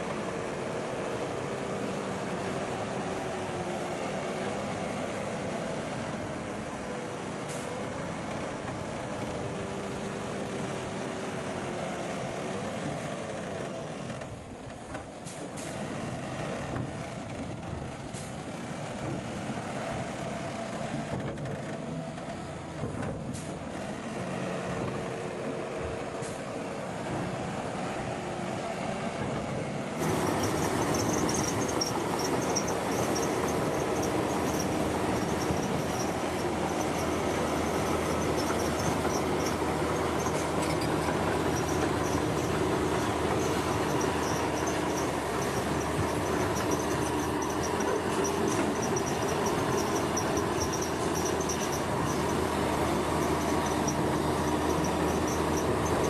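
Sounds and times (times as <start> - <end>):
heavy construction machinery running: 0.0 - 56.0
rapid high-pitched chirping: 30.0 - 52.4
faint high squeaks: 30.0 - 56.0
heavy machinery drone: 30.0 - 56.0.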